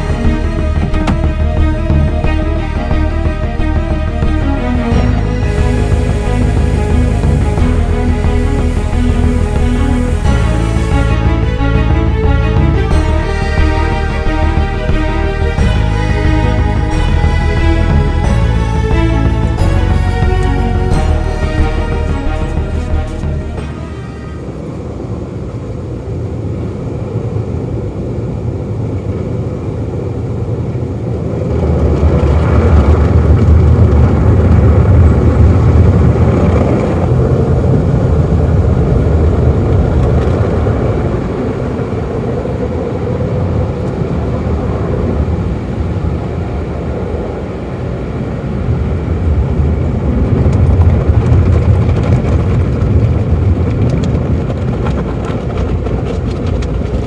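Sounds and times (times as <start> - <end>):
car wash machinery rumbling: 0.0 - 27.4.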